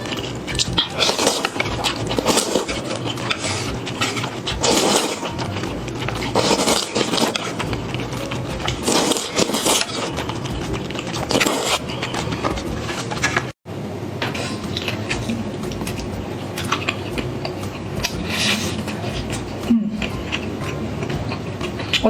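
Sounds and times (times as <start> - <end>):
noodle slurping: 0.0 - 13.6
wet chewing: 0.0 - 13.6, 14.4 - 22.0.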